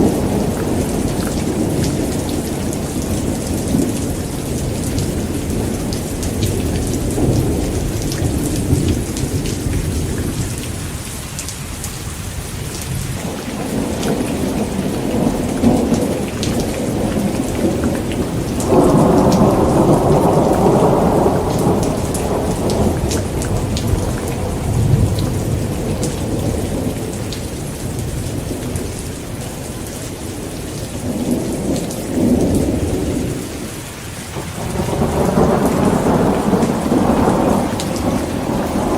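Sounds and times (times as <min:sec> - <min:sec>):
thunder rumbling: 0:00.0 - 0:11.0, 0:12.6 - 0:33.7, 0:34.3 - 0:38.9
heavy rain pouring: 0:00.0 - 0:38.9
sharp thunderclap: 0:13.2 - 0:27.2, 0:34.4 - 0:38.9.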